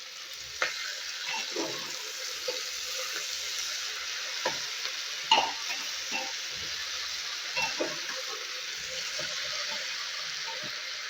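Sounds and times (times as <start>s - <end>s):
food sizzling in oil: 0.0s - 11.0s
spoon scraping and knocking on pot: 7.6s - 8.2s.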